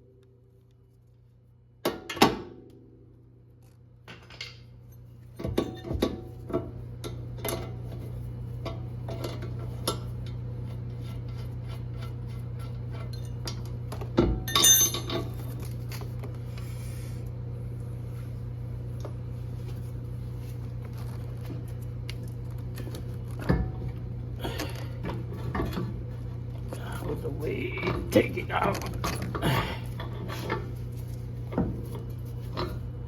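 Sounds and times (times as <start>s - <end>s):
steady low hum: 0.0s - 33.0s
metal tools clinking and clanking: 14.5s - 15.4s.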